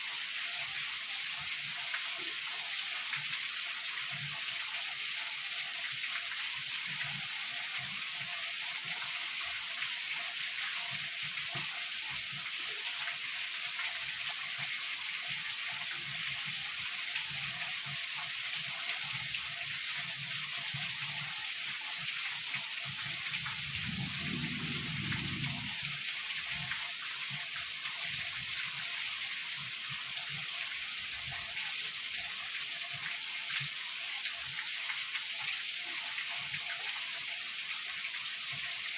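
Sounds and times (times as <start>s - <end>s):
heavy rain: 22.9s - 28.7s
distant thunder rumble: 23.6s - 25.9s.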